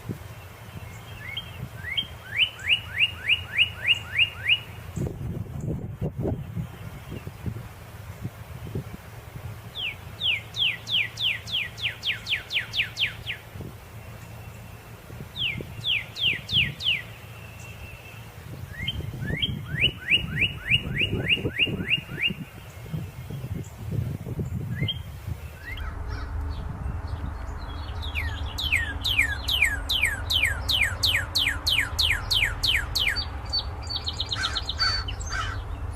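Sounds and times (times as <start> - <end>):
bird singing whistles: 1.1 - 4.8, 9.8 - 13.4, 15.4 - 23.5, 24.7 - 25.8, 27.0 - 34.7
steady low hum: 22.3 - 35.9.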